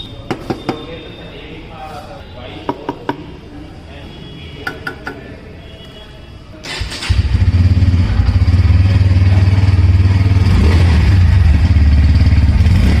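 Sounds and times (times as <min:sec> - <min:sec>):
motorcycle engine cranking: 0:06.6 - 0:08.4
motorcycle engine idling: 0:07.0 - 0:13.0.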